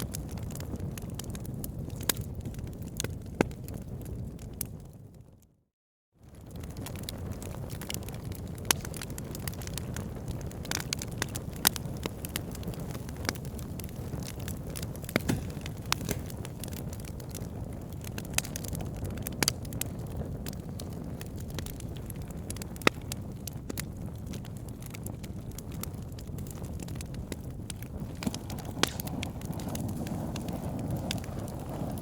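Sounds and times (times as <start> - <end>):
wood fire crackling: 0.0 - 4.9, 6.3 - 32.0
logs popping and snapping: 12.9 - 17.4, 27.7 - 32.0.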